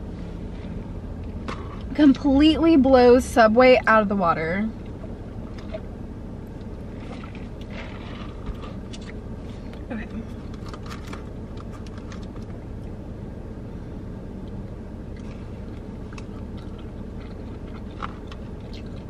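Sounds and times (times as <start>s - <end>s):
car cabin hum: 0.0s - 19.0s
chewing and biting sandwich: 15.1s - 19.0s.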